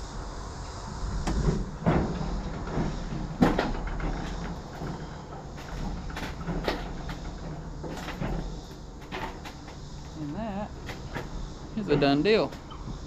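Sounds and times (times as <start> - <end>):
knocks and scrapes: 1.3 - 9.8.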